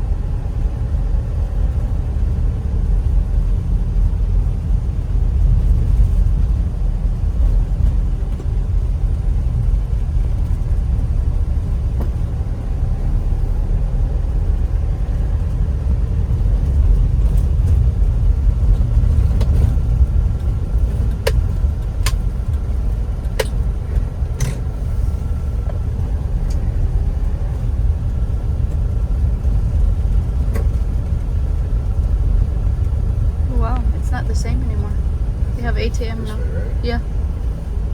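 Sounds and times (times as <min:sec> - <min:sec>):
vehicle rumble: 0:00.0 - 0:37.9.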